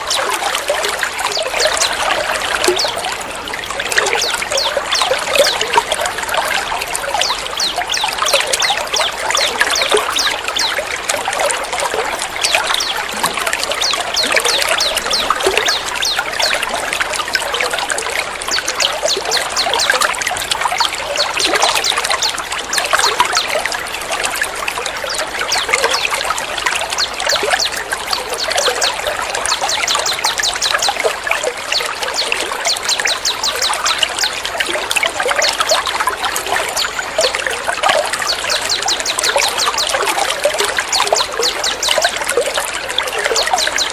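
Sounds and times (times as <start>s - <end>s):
water trickling and splashing: 0.0s - 43.9s.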